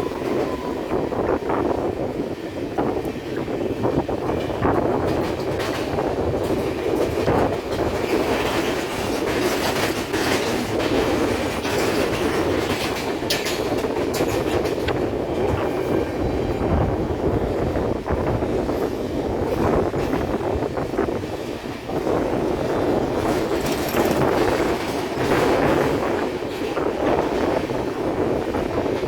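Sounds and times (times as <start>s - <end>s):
train rumbling on track: 0.0s - 29.0s
wheels clanking over rail joints: 4.4s - 15.8s, 21.9s - 27.3s.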